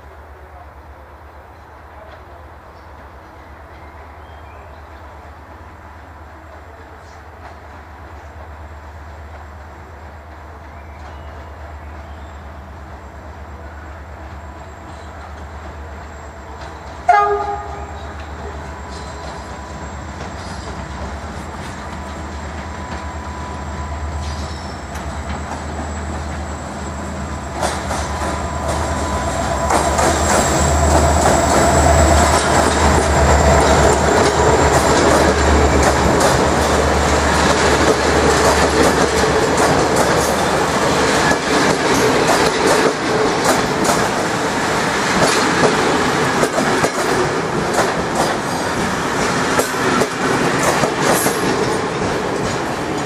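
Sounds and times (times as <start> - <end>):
diesel locomotive engine drone: 0.0 - 53.0
train wheels clacking on rail joints: 14.8 - 53.0.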